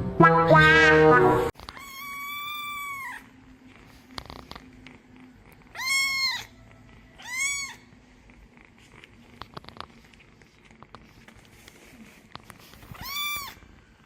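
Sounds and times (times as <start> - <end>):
cat meowing: 1.6 - 3.3, 5.7 - 7.9, 12.9 - 13.6.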